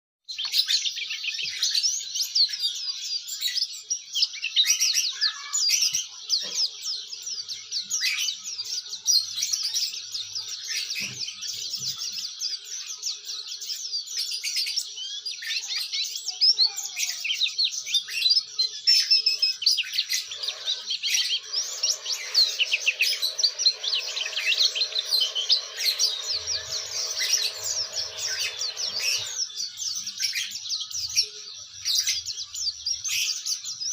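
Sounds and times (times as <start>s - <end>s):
bird twittering song: 0.3s - 33.9s.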